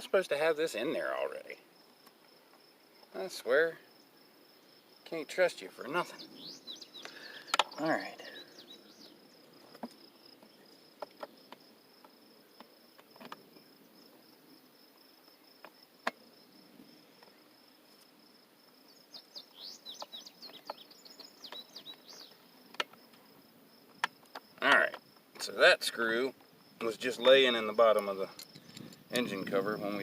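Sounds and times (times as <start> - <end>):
insect high-pitched trill: 0.0 - 30.0.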